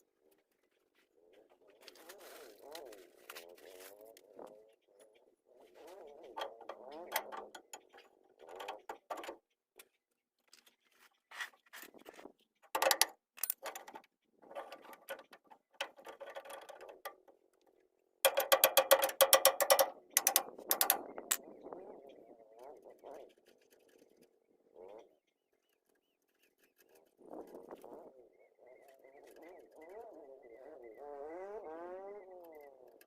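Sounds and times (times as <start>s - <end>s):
metal knocks: 12.8s - 14.0s, 18.2s - 21.4s
ratchet wrench clicking: 18.3s - 21.4s.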